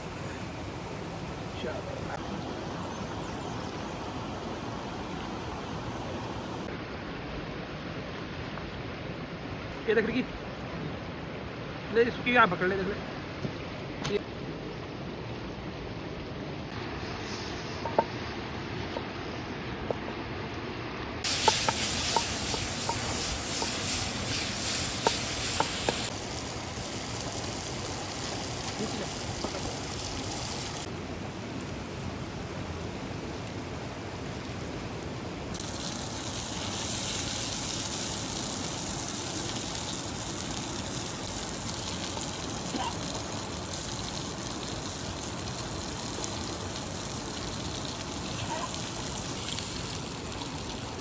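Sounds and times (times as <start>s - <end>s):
steady rushing hiss: 0.0s - 34.2s, 35.0s - 51.0s
sizzling in a hot pan: 16.7s - 19.5s, 21.2s - 30.9s, 35.6s - 51.0s
sharp pops and crackles: 21.2s - 26.2s.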